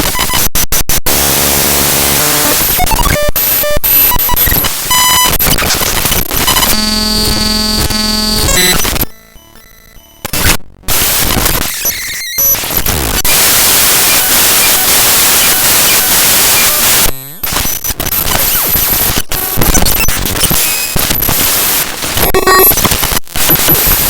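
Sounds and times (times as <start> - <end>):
harsh loud static: 0.0 - 24.0
crackling clicks: 17.4 - 24.0.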